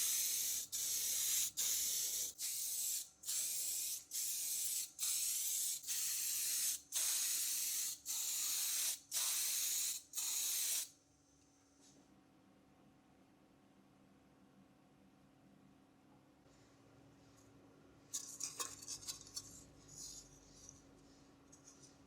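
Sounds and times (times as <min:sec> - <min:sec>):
pressurised spray hissing: 0:00.0 - 0:10.9.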